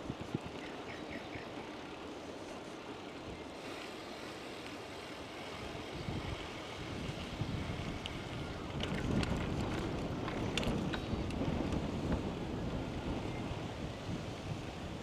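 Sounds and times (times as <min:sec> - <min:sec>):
wind rushing on microphone: 0:00.0 - 0:01.4, 0:05.5 - 0:15.0.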